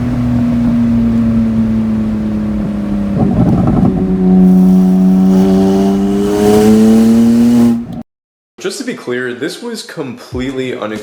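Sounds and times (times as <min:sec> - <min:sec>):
car engine accelerating: 0:00.0 - 0:08.0.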